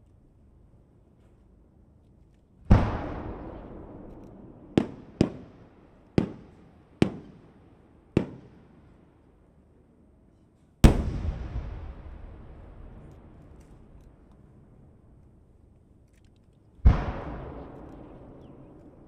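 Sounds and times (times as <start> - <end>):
sharp firework bangs: 2.7 - 5.6, 6.2 - 7.4, 8.2 - 8.6, 10.8 - 13.0
deep firework booms with echo: 2.7 - 7.5, 10.8 - 13.9, 16.8 - 19.0.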